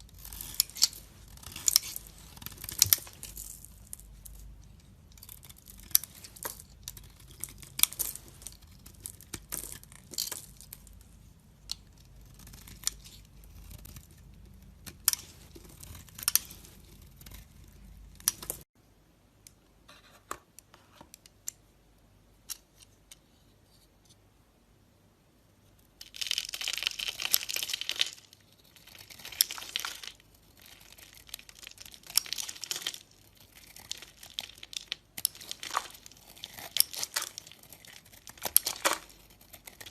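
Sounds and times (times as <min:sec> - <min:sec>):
knife crunching through soap: 0:28.7 - 0:39.9.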